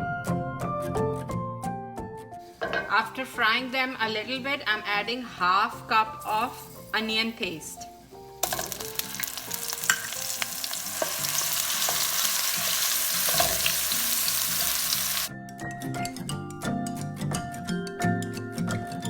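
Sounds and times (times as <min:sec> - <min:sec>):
background music: 0:00.0 - 0:19.0
onion paste sizzling in oil: 0:06.2 - 0:15.3.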